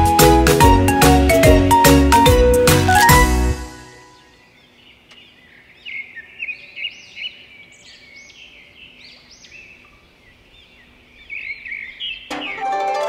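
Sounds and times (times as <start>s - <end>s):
small birds chirping: 4.0s - 12.8s.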